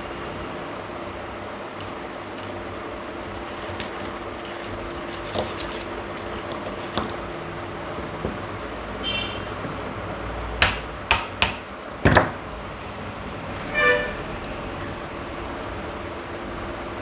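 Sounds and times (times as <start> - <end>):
metal parts scraping: 1.8 - 2.7, 3.4 - 7.3, 13.1 - 17.0.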